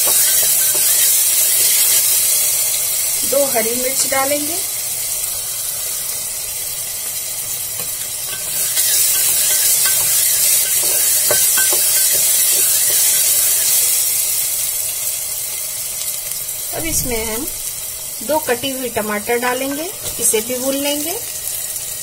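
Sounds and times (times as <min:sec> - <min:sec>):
vegetables sizzling in hot oil: 0:00.0 - 0:22.0
spatula knocking and scraping pot: 0:07.8 - 0:13.4.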